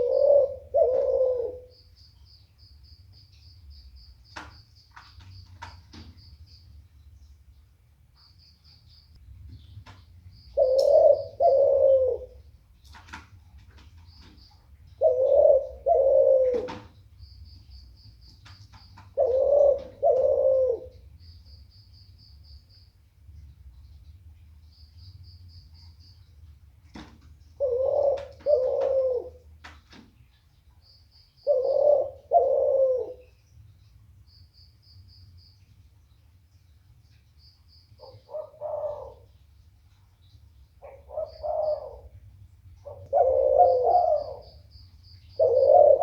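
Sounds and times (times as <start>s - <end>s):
dove cooing: 0.0s - 1.8s, 10.6s - 12.5s, 14.9s - 17.0s, 19.1s - 21.1s, 27.6s - 29.5s, 31.4s - 33.4s, 38.0s - 39.3s, 40.8s - 42.2s, 42.8s - 44.7s, 45.3s - 46.0s.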